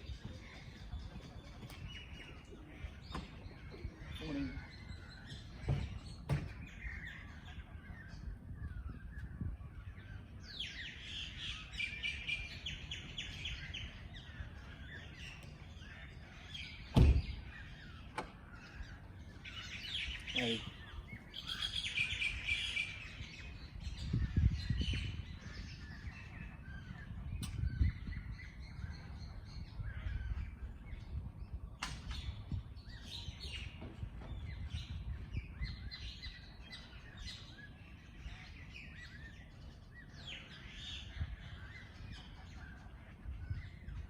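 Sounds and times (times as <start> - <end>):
songbirds chirping: 0.0 - 44.0.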